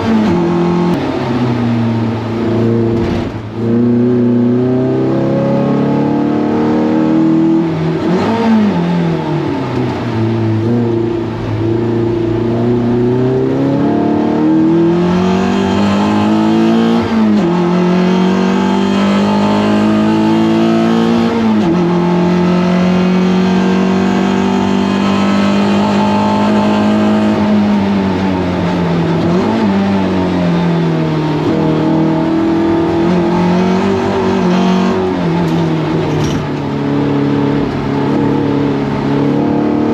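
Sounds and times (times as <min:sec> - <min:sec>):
race car engine shifting gears: 0:02.4 - 0:08.8, 0:31.4 - 0:39.9.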